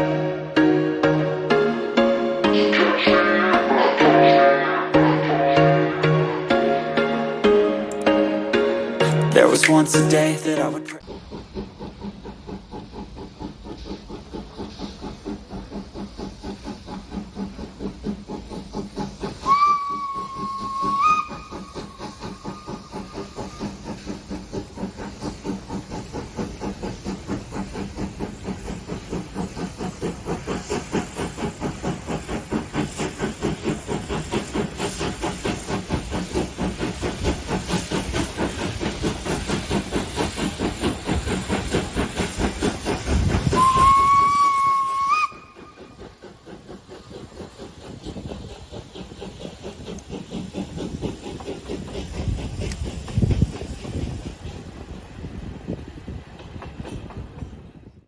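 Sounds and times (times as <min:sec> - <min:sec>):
steam locomotive chuffing: 0:00.0 - 0:58.0
long whistle blasts: 0:43.6 - 0:45.6.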